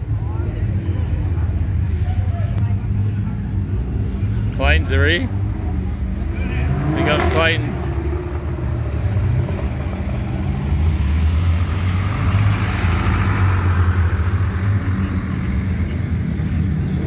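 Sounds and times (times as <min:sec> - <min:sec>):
car driving past: 0:05.2 - 0:17.0.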